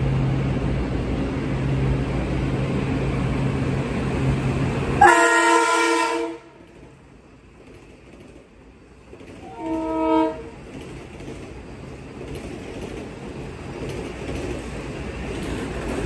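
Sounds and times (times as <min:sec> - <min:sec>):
electric train rumbling: 0:00.0 - 0:16.0
train horn chord: 0:05.0 - 0:06.6, 0:09.4 - 0:10.5.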